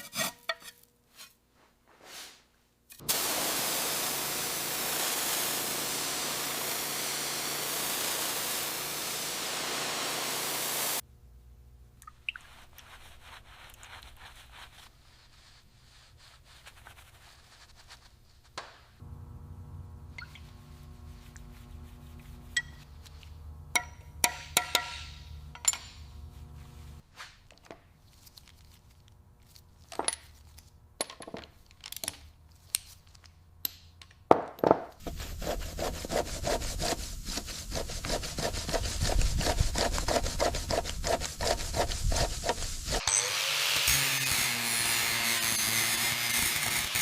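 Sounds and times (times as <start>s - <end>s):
hand tool scraping rhythmically: 0.0s - 1.3s, 35.0s - 43.3s
steady low hum: 19.0s - 27.0s.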